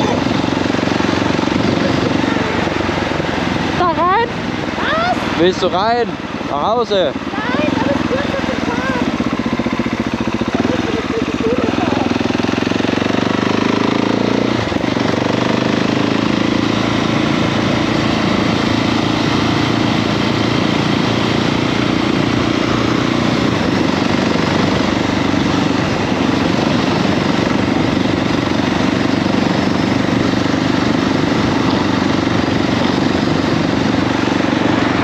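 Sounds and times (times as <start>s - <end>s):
wind rushing over microphone: 0.0s - 5.4s, 12.0s - 35.0s
motorcycle engine running: 0.0s - 35.0s.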